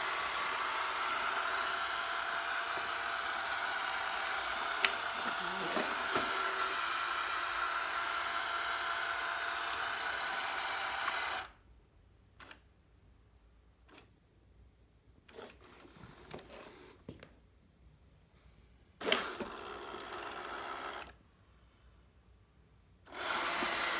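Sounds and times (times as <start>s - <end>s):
robot vacuum whirring: 0.0s - 11.5s, 19.0s - 21.2s, 23.1s - 23.9s.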